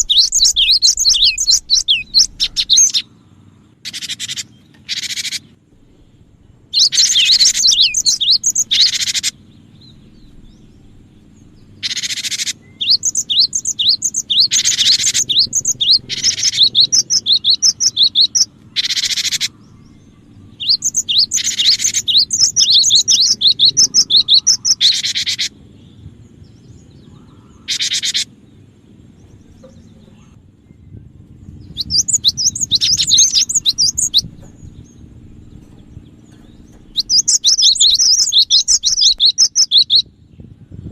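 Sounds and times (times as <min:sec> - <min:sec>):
tit calling with high chirps: 0:00.0 - 0:03.1, 0:03.8 - 0:05.5, 0:06.7 - 0:09.4, 0:11.8 - 0:25.5, 0:27.1 - 0:28.3, 0:31.8 - 0:34.7, 0:36.9 - 0:40.1.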